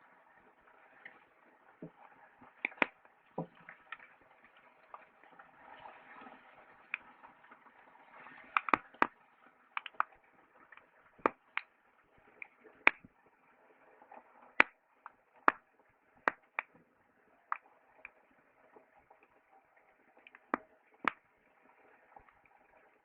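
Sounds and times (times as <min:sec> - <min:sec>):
campfire crackling: 0:00.6 - 0:05.5, 0:08.4 - 0:13.4.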